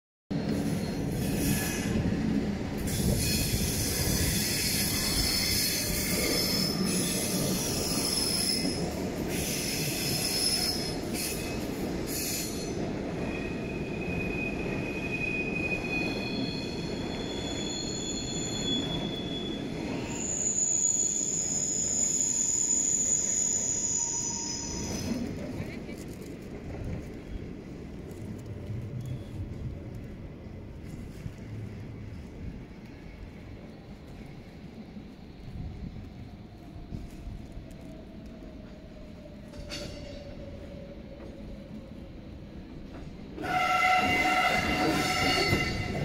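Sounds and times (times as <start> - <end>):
steel wheels squealing: 0.4 - 2.0, 2.8 - 25.3, 43.4 - 46.0
train rumbling over switches: 35.4 - 46.0.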